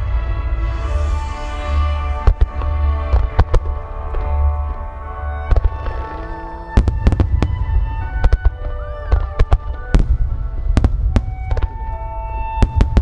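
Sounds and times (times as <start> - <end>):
low rumble: 0.0 - 13.0
music with long held notes: 0.0 - 13.0
firework shells booming: 5.5 - 13.0.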